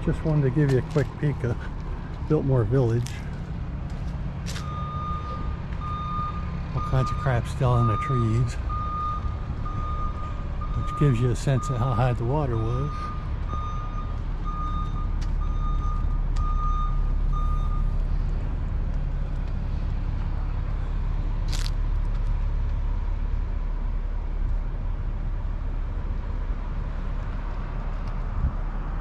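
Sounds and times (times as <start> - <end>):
truck engine running: 0.0 - 28.9
truck backup alarm beeping: 4.5 - 18.1.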